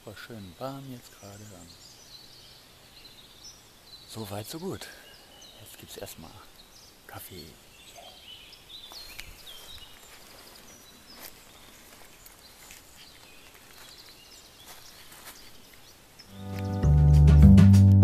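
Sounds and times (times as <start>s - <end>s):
birdsong chirps and trills: 0.0s - 17.0s
music: 16.3s - 18.0s.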